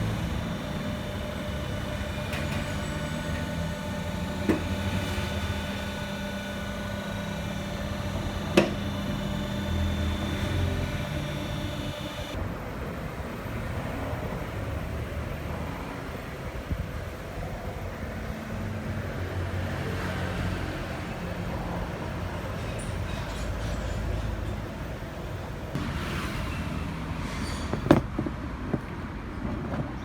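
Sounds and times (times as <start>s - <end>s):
car engine running with whine: 0.0s - 22.2s.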